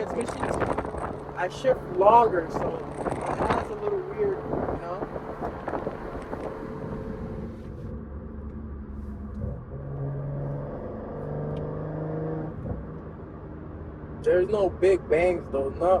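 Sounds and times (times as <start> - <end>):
car exhaust drone: 0.0 - 16.0.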